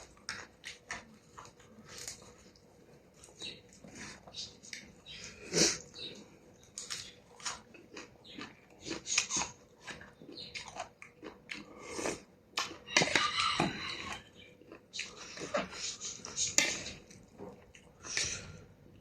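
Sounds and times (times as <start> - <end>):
person chewing and biting food: 6.6 - 13.3.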